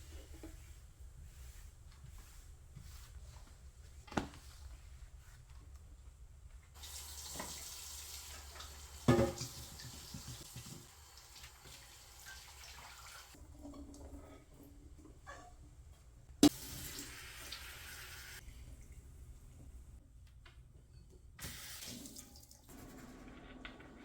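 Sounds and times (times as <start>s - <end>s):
tap water running into sink: 6.8s - 14.0s.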